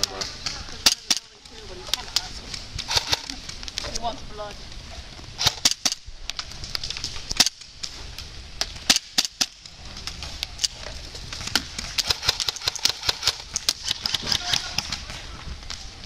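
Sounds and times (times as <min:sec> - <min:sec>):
airsoft guns firing: 0:00.0 - 0:03.4, 0:05.4 - 0:06.1, 0:08.6 - 0:09.7, 0:11.4 - 0:15.3.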